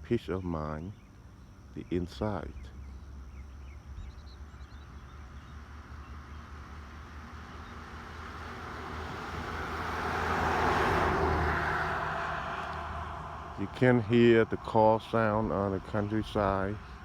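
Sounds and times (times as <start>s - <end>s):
car passing: 5.0s - 17.0s.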